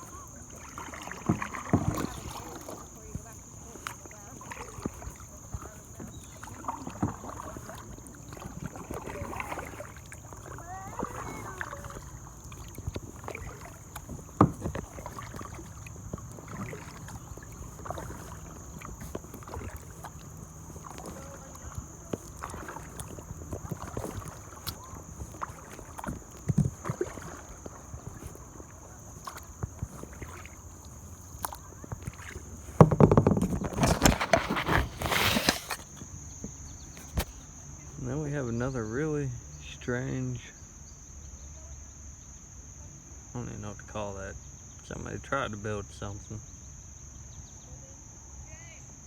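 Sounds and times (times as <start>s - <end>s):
knocks and splashes: 0.0s - 37.5s
paddle strokes in water: 0.0s - 42.3s
high insect-like whine: 0.0s - 49.0s.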